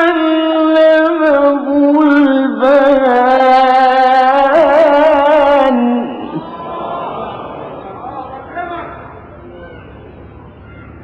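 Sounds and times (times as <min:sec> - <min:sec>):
man reciting melodically: 0:00.0 - 0:06.5.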